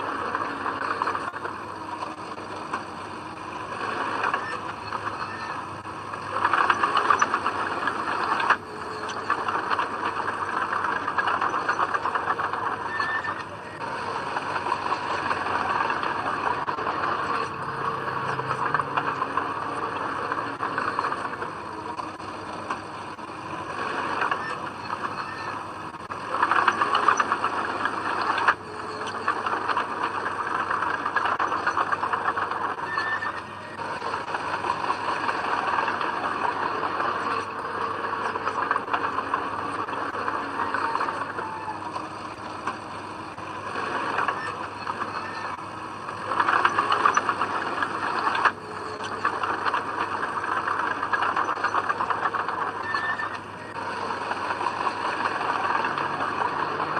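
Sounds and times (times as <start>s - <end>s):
bulldozer diesel engine under load: 0.0s - 56.9s
rattling clatter of tracks: 0.0s - 56.9s.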